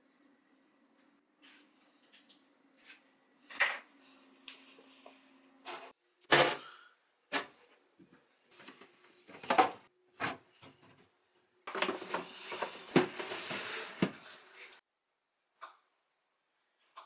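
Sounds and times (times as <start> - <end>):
household items knocking and clattering: 11.7 - 14.3.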